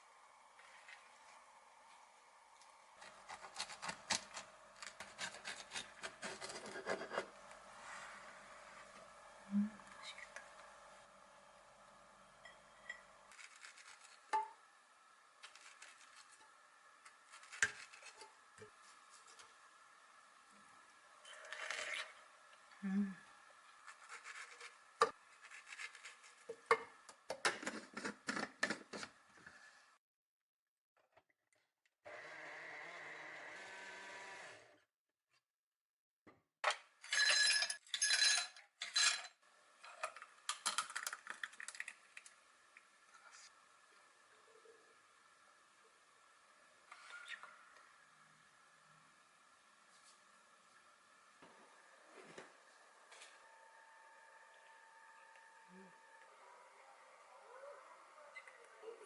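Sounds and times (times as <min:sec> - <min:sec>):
food preparation scraping and rubbing: 0:03.0 - 0:09.0, 0:13.3 - 0:14.3, 0:15.4 - 0:19.6, 0:23.7 - 0:26.7, 0:27.5 - 0:29.8.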